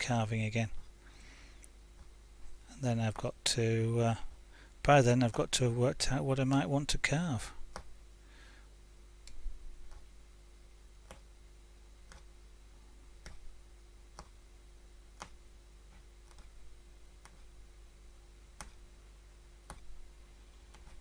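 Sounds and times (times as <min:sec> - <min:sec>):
needle punching cloth clicks: 0:19.6 - 0:20.0.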